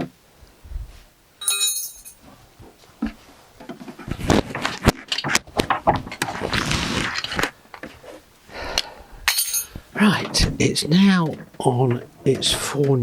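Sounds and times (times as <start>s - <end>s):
wooden trolley knocking and scraping: 2.6s - 7.9s.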